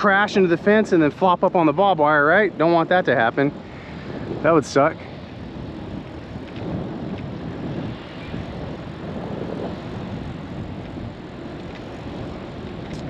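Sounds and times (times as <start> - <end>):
bicycle rolling hum: 0.0 - 13.0
wind rushing over microphone: 0.0 - 13.0.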